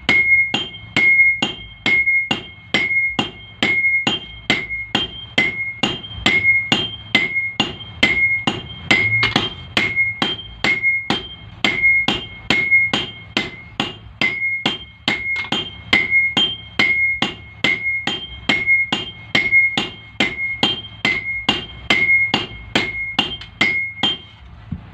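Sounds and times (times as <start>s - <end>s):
hammer striking iron on anvil: 0.0s - 24.4s.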